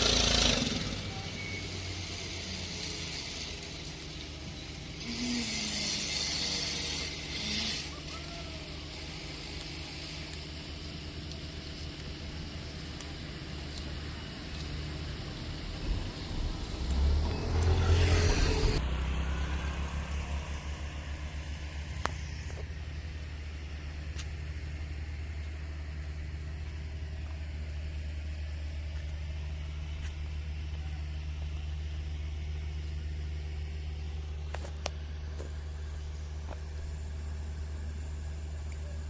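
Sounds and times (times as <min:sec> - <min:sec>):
engine droning: 0:00.0 - 0:39.0
loud rushing: 0:15.7 - 0:18.9.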